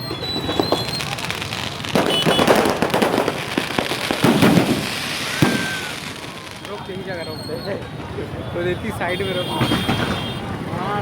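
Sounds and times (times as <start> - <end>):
fireworks crackling pops: 0.0 - 8.0, 9.5 - 10.4
sharp firework bang: 1.9 - 6.2.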